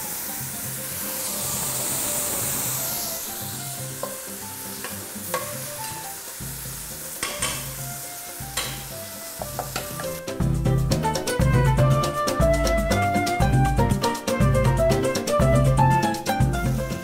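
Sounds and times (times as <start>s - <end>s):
okra sizzling in a hot pan: 0.0s - 11.3s, 16.2s - 17.0s
background music: 0.0s - 17.0s
utensil clicking against pan: 4.8s - 6.0s, 7.2s - 7.8s, 8.6s - 8.9s.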